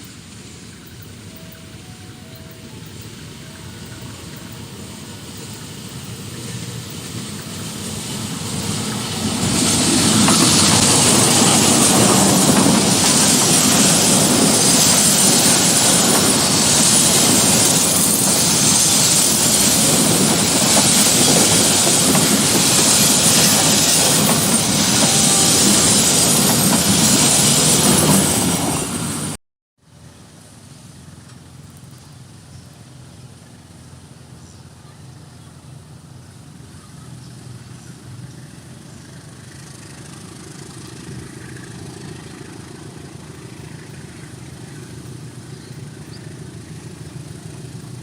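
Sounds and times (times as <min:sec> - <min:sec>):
wheels clattering on rails: 0:00.0 - 0:29.4, 0:37.5 - 0:48.0
train passing at speed: 0:00.0 - 0:30.1, 0:32.8 - 0:48.0.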